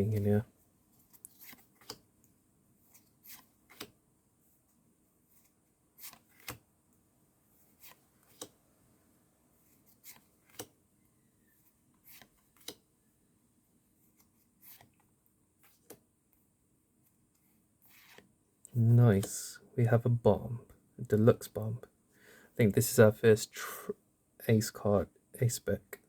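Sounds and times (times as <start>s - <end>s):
trading cards sliding and clicking: 1.0s - 2.0s, 2.9s - 4.0s, 5.4s - 6.6s, 7.6s - 8.6s, 9.7s - 10.8s, 12.0s - 12.8s, 14.1s - 16.0s, 17.8s - 18.3s.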